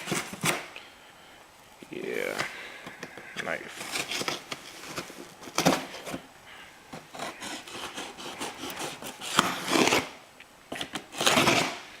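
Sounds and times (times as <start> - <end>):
knife cutting tape and cardboard: 0.0 - 0.7, 3.7 - 6.2, 7.0 - 11.9.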